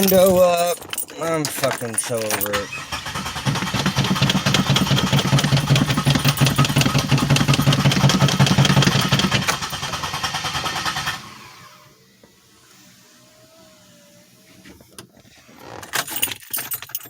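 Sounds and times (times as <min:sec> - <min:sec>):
car engine cranking without starting: 0:00.0 - 0:11.9.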